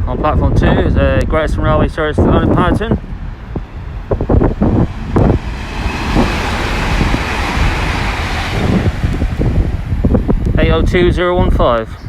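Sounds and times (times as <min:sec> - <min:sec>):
wind buffeting microphone: 0:00.0 - 0:12.0
low rumble: 0:02.0 - 0:11.7
train rushing past: 0:02.2 - 0:11.8.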